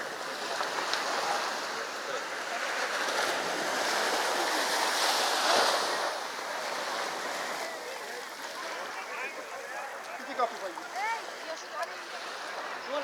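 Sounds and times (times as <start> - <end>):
sea waves breaking on beach: 0.0 - 13.0.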